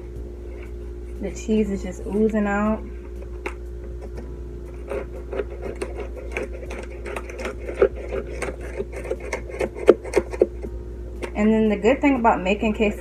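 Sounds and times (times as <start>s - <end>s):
knife cutting crisp tortillas: 4.1s - 10.7s.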